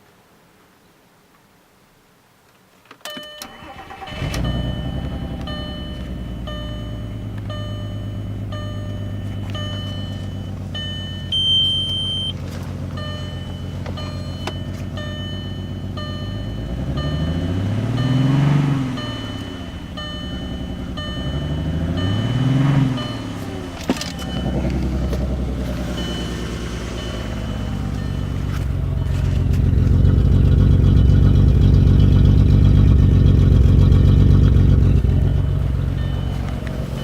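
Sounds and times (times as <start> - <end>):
engine starter cranking: 3.1 - 7.7
car engine idling with misfire: 3.3 - 37.0
engine revving: 3.6 - 12.3, 13.0 - 37.0.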